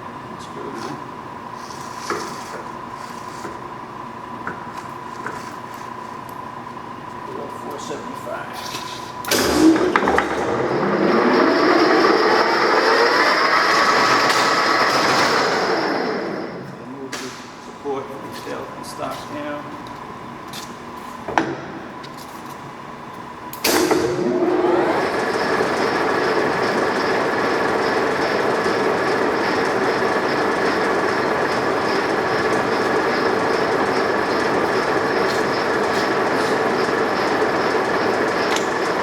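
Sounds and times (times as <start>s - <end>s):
lathe gear whine: 0.0s - 17.0s, 20.1s - 39.0s
lathe drive engaging clunk: 8.7s - 12.6s, 23.5s - 39.0s.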